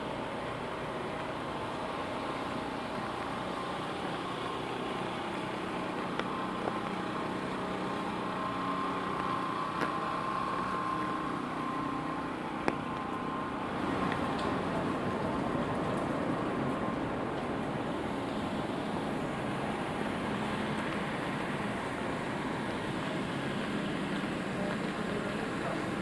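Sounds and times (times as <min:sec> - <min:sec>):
faint whine: 0:00.0 - 0:26.0
rain hiss: 0:00.0 - 0:26.0
wet traffic: 0:00.0 - 0:26.0
raindrops tapping on umbrella: 0:13.8 - 0:17.8.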